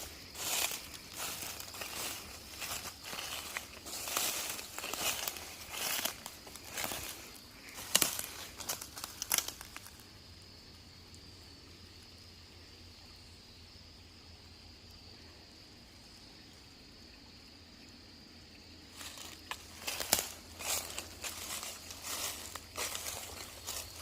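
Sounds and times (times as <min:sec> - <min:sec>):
crinkling and crunching: 0:00.0 - 0:10.0, 0:19.0 - 0:24.0
insects droning: 0:00.0 - 0:24.0.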